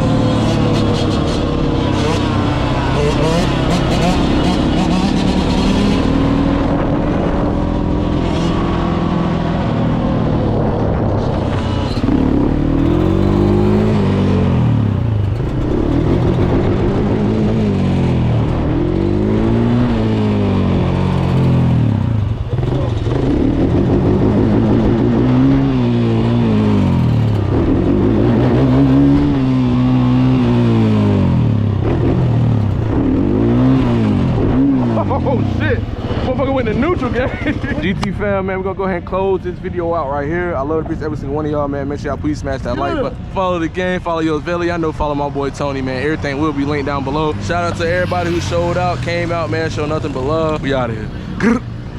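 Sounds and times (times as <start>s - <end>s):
dirt bike engine revving: 0.0s - 37.8s, 46.0s - 51.8s.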